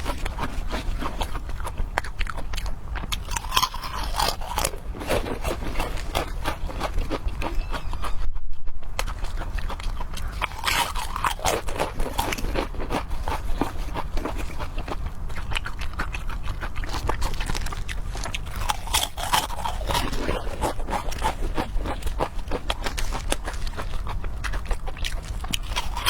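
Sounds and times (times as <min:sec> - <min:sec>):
person chewing with mouth smacks: 0:00.0 - 0:26.0.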